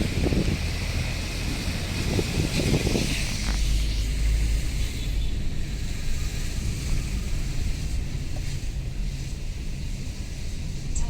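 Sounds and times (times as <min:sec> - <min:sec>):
wind buffeting microphone: 0:00.0 - 0:03.5
moving vehicle rumble: 0:00.0 - 0:11.0.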